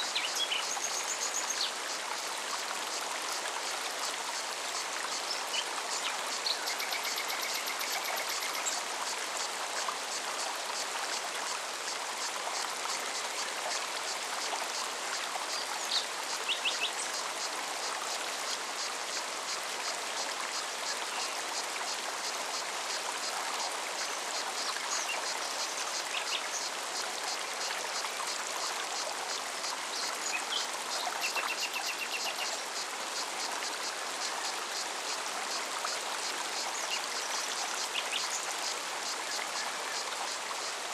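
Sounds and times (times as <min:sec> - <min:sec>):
stream running: 0:00.0 - 0:40.9.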